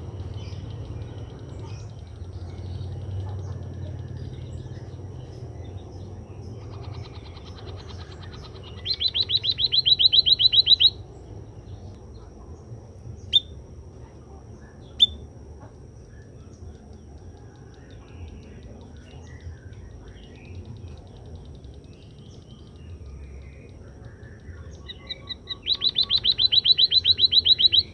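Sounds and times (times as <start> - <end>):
bird sharp chirps: 0.2 - 11.9, 14.8 - 15.3, 16.0 - 27.9
bird rapid high trill: 6.4 - 11.7, 24.3 - 27.9.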